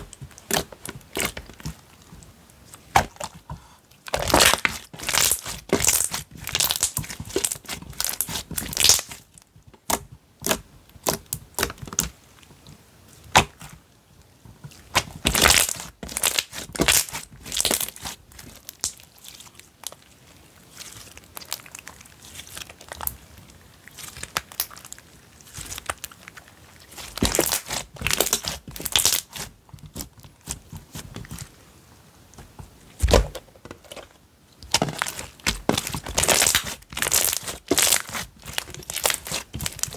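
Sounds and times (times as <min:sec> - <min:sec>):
slime crackling and popping: 0:00.0 - 0:01.7, 0:04.1 - 0:12.1, 0:14.8 - 0:20.0, 0:23.8 - 0:31.4, 0:34.6 - 0:39.9.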